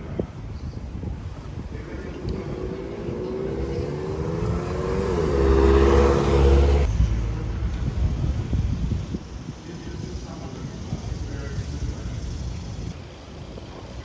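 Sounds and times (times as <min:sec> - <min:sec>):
vehicle engine accelerating: 0:01.3 - 0:07.8.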